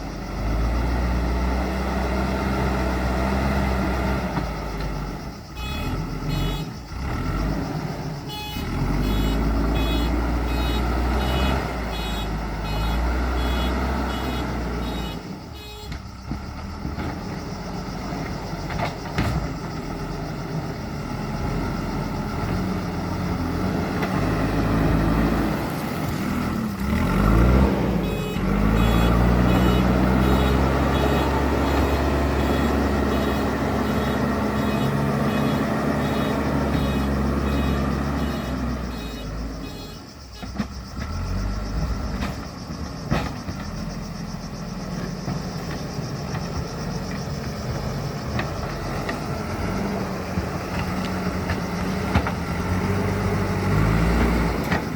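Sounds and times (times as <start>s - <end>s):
backhoe diesel engine revving: 0.0s - 54.9s
reversing alarm beeping: 8.2s - 16.0s, 27.1s - 40.6s.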